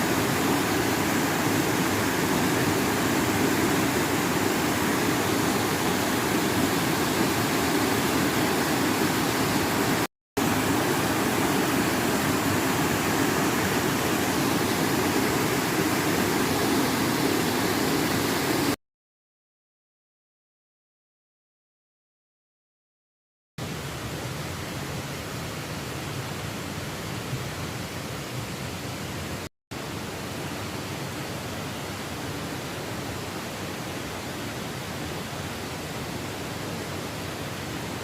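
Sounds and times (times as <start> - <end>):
stream water rushing over rocks: 0.0 - 18.8.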